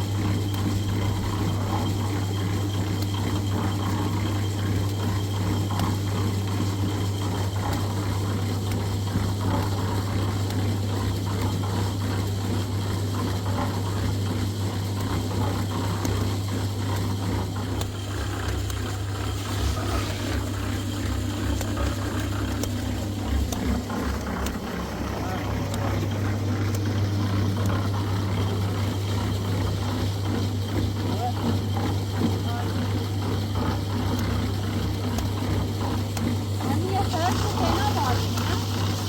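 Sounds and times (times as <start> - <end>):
irregular clicking and rattling: 16.9 - 39.0
machine humming: 16.9 - 39.0.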